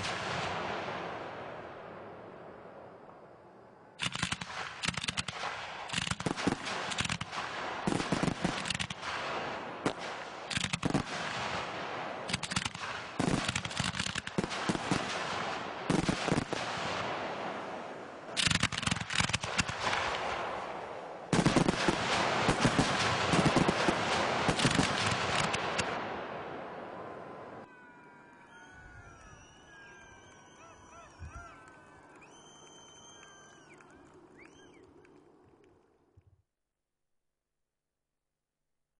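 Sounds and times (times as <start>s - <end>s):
fireworks bangs and crackle: 0.0s - 3.3s, 4.0s - 27.7s.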